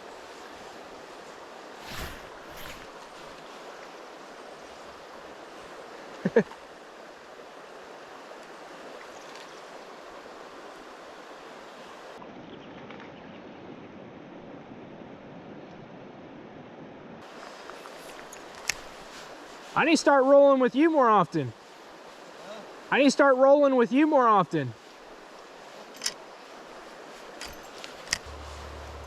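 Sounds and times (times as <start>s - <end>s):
river water flowing: 0.0s - 12.2s, 17.2s - 29.0s
loud double sound: 28.2s - 29.0s.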